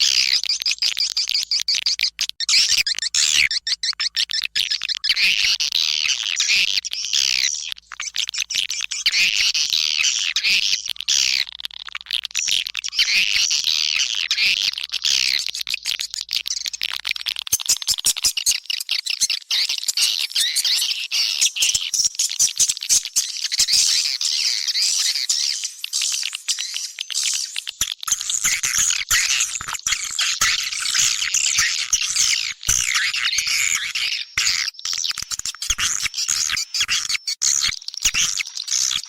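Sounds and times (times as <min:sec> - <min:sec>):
birds twittering: 0:17.6 - 0:27.5.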